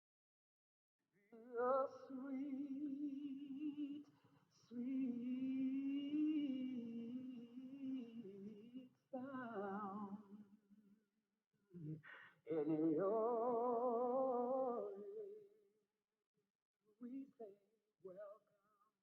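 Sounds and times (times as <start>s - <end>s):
person singing with vibrato: 1.3s - 10.4s, 11.8s - 15.4s.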